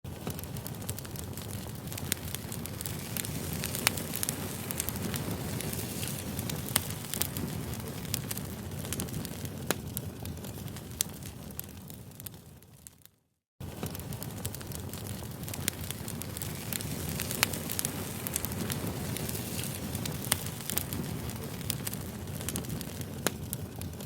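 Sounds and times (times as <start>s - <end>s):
low rush of flames: 0.1s - 13.0s, 13.6s - 24.0s
burning wood crackling and popping: 0.1s - 24.0s.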